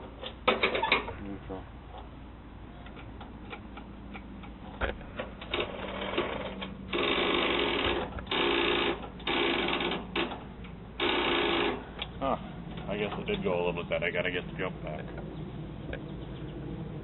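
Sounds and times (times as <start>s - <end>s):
electric starter cranking engine: 5.2s - 10.4s, 11.0s - 12.0s.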